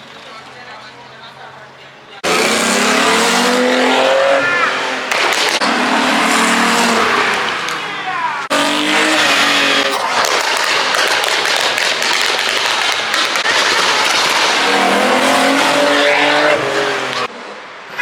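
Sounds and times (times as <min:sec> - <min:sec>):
car engine revving: 0:02.2 - 0:17.6.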